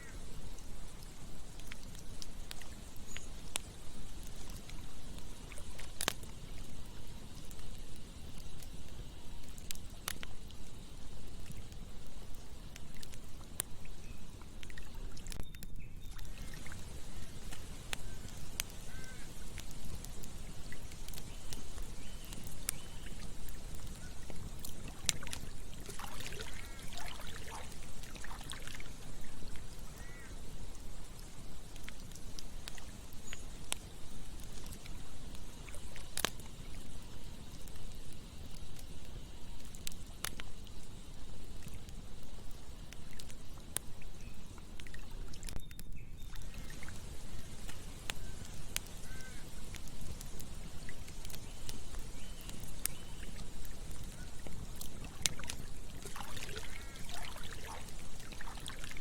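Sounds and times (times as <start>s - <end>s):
campfire crackling and popping: 0.0s - 59.0s
insect chirring: 0.0s - 59.0s
flowing river water: 16.1s - 33.7s, 46.3s - 59.0s
short chirping calls: 17.1s - 19.5s, 47.3s - 49.6s.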